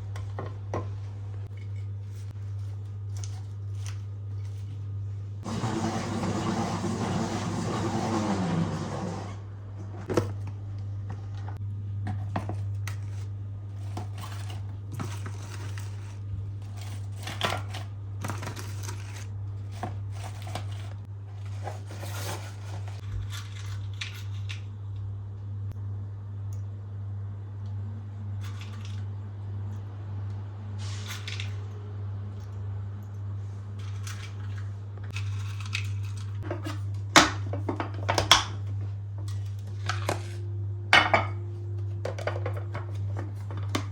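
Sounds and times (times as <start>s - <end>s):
low hum: 38.4s - 43.9s.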